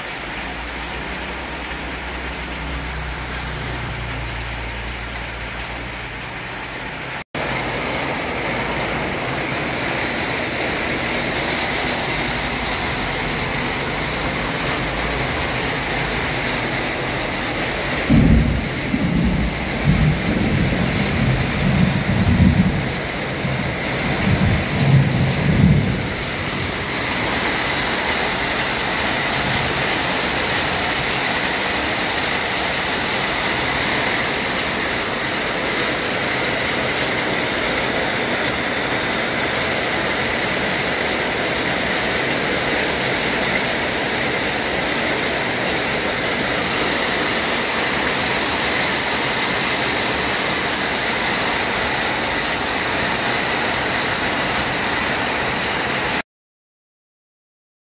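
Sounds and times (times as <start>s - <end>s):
heavy rain pouring: 0.0s - 56.2s.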